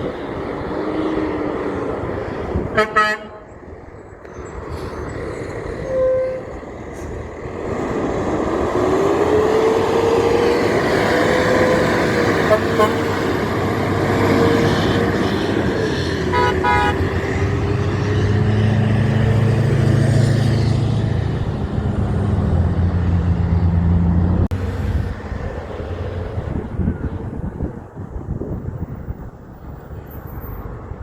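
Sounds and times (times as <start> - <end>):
road noise: 0.0 - 31.0
truck engine drone: 0.0 - 31.0
vehicle horn toots: 2.8 - 3.5, 12.4 - 13.2, 16.3 - 17.1.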